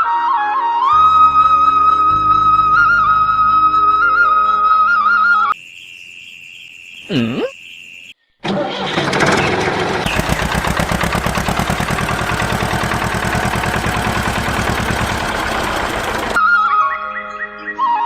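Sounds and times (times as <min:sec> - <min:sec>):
small engine running: 0:08.4 - 0:16.4.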